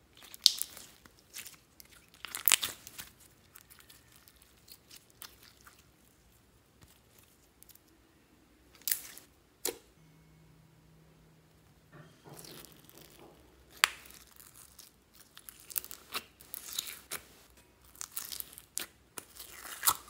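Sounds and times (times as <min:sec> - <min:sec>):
slime clicking and popping: 0:00.2 - 0:00.9, 0:12.4 - 0:17.2
slime snapping: 0:00.3 - 0:00.8, 0:13.7 - 0:14.8.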